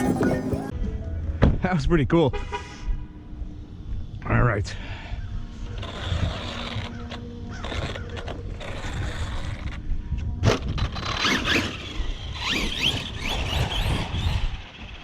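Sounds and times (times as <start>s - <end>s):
electric motor whining: 5.6s - 15.0s.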